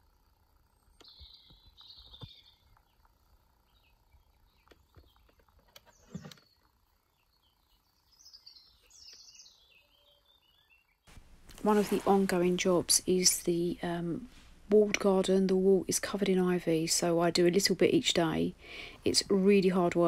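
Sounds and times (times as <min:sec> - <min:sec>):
birds chirping: 0:00.7 - 0:17.8.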